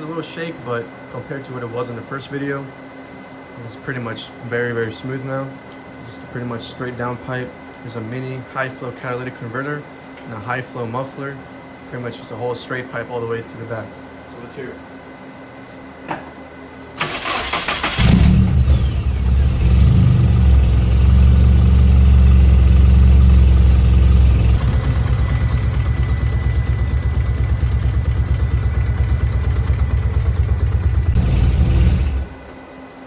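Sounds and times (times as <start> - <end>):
engine cranking on starter: 17.0 - 20.9, 28.6 - 32.5
car engine idling: 17.7 - 32.6.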